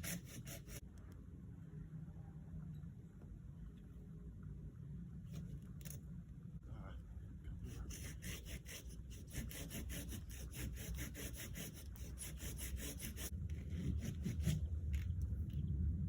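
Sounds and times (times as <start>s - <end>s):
hand saw cutting wood: 0.0s - 0.8s, 7.8s - 14.6s.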